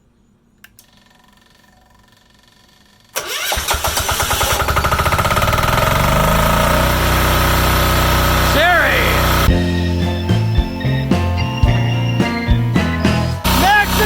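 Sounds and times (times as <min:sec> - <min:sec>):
diesel engine starting and chugging: 0:03.2 - 0:14.0.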